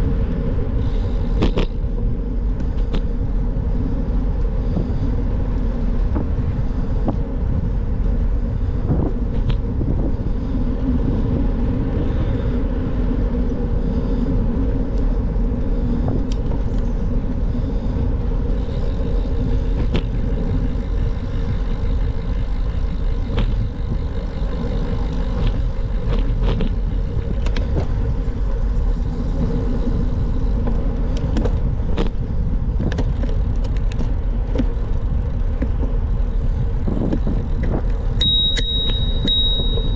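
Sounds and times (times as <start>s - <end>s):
bicycle tyres rolling on road: 0.0s - 39.9s.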